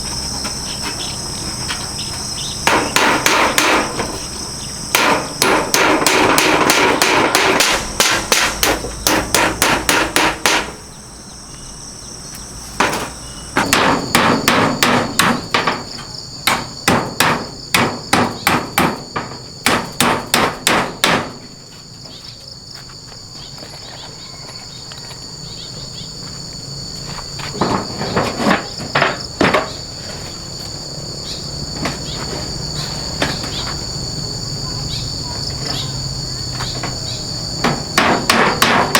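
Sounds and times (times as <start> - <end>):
insects chorus: 0.0 - 38.9
hammer blows: 2.6 - 4.3, 4.9 - 10.8, 12.8 - 21.5, 37.6 - 38.9.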